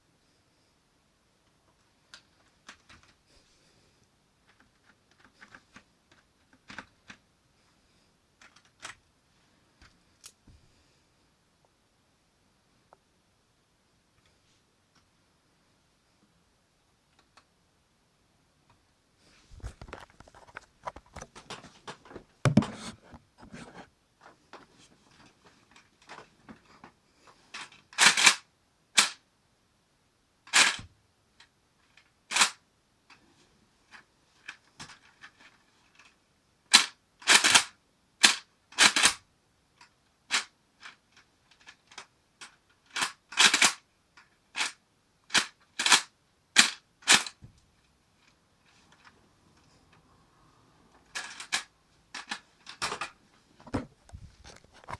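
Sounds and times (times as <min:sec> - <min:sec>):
plastic bricks rattling and clicking: 0:19.6 - 0:22.7, 0:51.1 - 0:53.2
loud sharp plastic snaps: 0:29.0 - 0:29.2, 0:43.0 - 0:43.8, 0:44.6 - 0:47.4.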